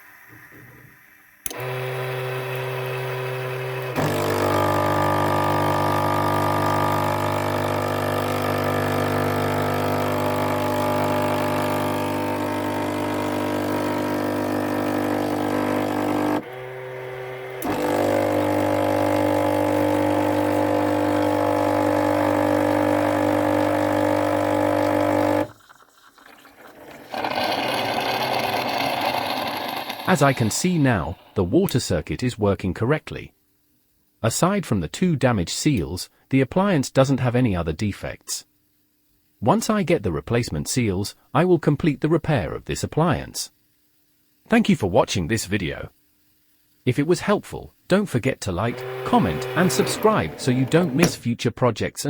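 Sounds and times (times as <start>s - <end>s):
coffee machine pump buzzing: 0.0s - 31.4s, 48.5s - 51.2s.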